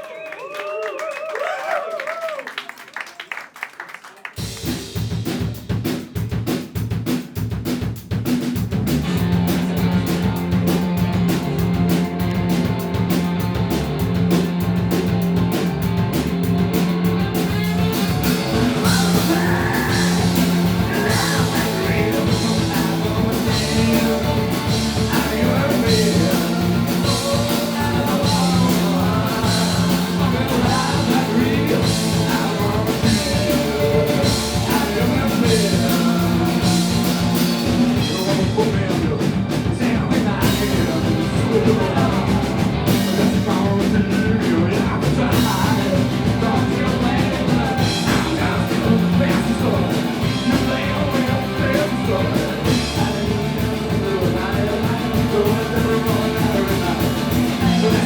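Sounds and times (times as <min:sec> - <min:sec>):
bass line: 0:04.4 - 0:58.0
drum kit: 0:04.4 - 0:58.0
person singing: 0:16.7 - 0:58.0.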